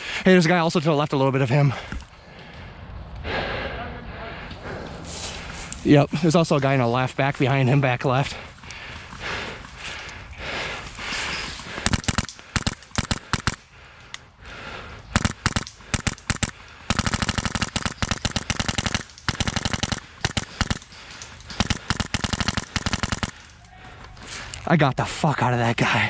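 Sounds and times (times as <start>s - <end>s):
airsoft rifle firing: 11.6s - 13.7s, 15.1s - 23.6s.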